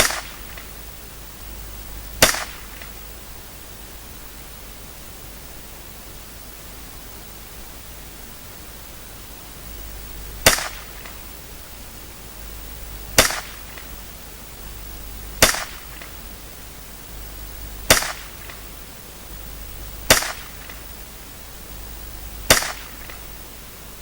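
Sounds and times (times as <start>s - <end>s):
rifle shots with echo: 0.0s - 0.7s, 2.2s - 3.0s, 10.4s - 11.2s, 13.1s - 14.0s, 15.4s - 16.2s, 17.9s - 18.7s, 20.0s - 20.8s, 22.4s - 23.4s.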